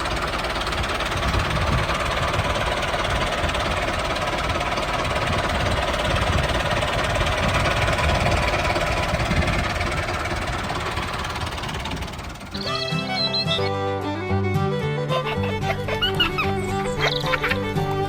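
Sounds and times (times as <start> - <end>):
small engine running: 0.0 - 13.8, 14.7 - 18.0
music: 12.5 - 18.0.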